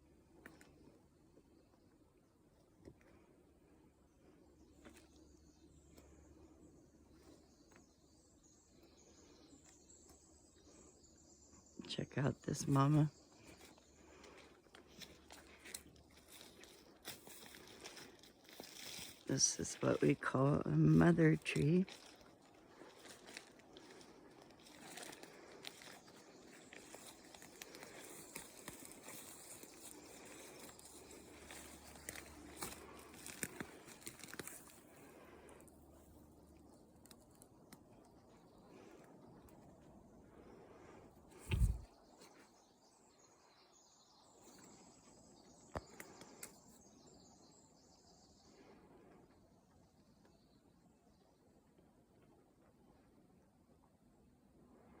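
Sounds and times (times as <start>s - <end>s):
faint crackles and rustles: 12.9s - 20.2s, 21.4s - 42.7s, 44.3s - 47.6s.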